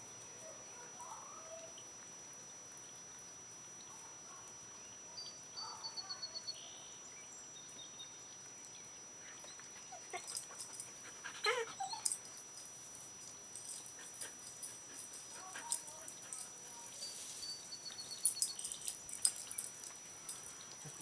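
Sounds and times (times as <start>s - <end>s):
dog whining: 11.2s - 12.2s
dog whimpering: 11.3s - 12.2s.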